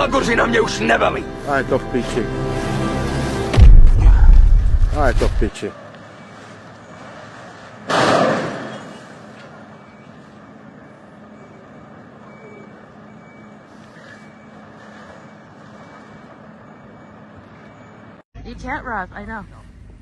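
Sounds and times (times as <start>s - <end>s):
vehicle engine humming: 0.0s - 7.9s
loud sudden noise: 3.5s - 5.5s.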